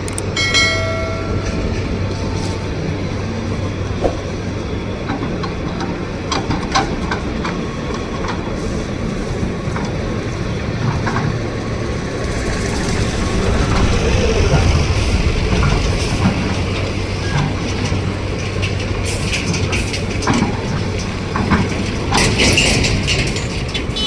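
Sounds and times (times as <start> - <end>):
excavator diesel engine: 0.0 - 24.0
metallic clanks and knocks: 14.5 - 24.0.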